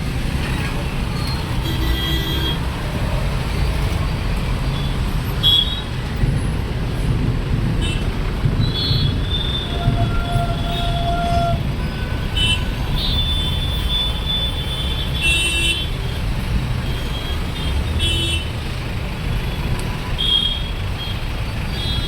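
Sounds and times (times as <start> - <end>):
road traffic rumbling: 0.0 - 22.0
vehicle horns honking: 1.6 - 2.8, 8.6 - 15.9, 19.9 - 22.0.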